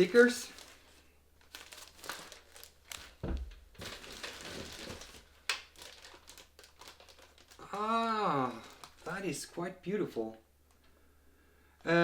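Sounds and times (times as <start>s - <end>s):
packaging crinkling: 0.0s - 9.5s.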